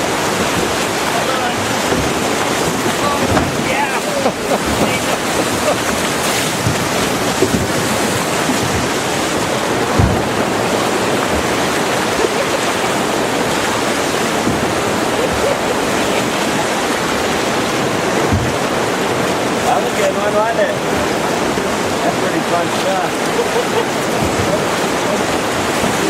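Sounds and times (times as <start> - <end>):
rushing whitewater: 0.0 - 26.0
wind buffeting microphone: 0.0 - 26.0
short low thumps: 0.4 - 19.0.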